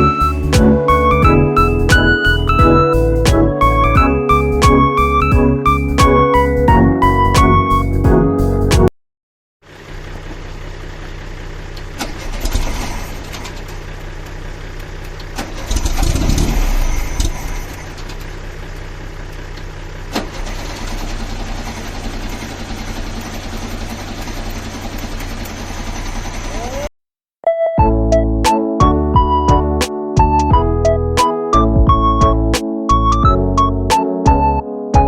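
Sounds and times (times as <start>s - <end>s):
car engine idling: 0.0s - 8.7s, 9.6s - 26.9s.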